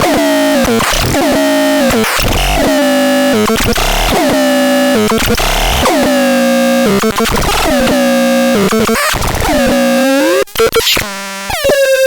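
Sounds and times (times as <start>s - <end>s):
synthesizer tones with pitch swoops: 0.0s - 8.9s.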